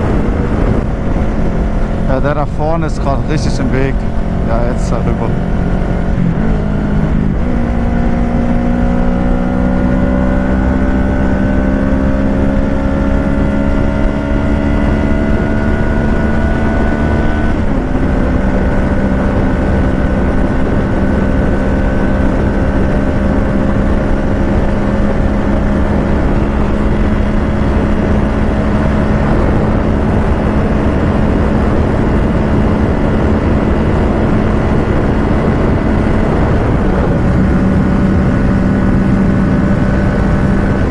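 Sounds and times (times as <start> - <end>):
motorcycle engine at speed: 0.0 - 40.9
road noise: 0.0 - 40.9
wind noise: 0.0 - 40.9.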